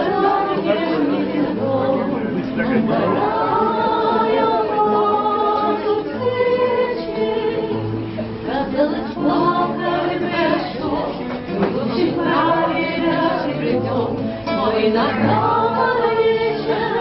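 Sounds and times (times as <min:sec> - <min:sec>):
voices singing in harmony: 0:00.0 - 0:17.0.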